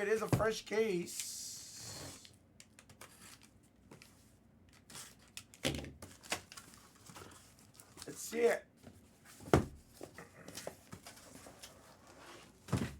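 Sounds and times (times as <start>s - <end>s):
packaging clicks and rustles: 4.7s - 8.1s.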